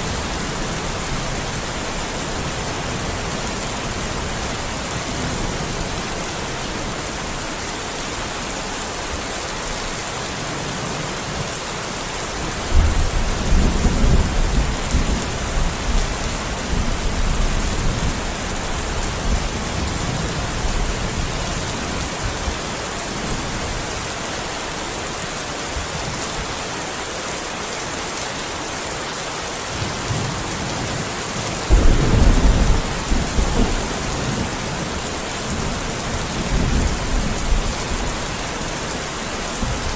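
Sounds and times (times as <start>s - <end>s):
heavy rain hissing: 0.0s - 39.9s
thunder rumbling: 31.7s - 38.6s.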